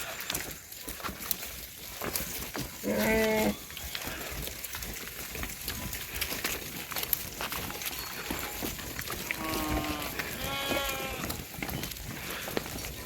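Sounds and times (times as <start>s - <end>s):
goat or sheep bleat: 2.8s - 4.5s, 8.3s - 11.6s.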